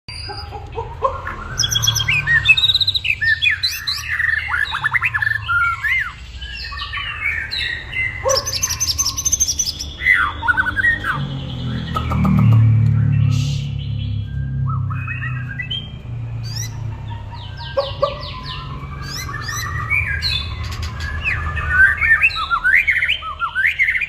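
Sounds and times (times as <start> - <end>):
bird singing whistled phrases: 1.4 - 12.5, 17.6 - 24.0.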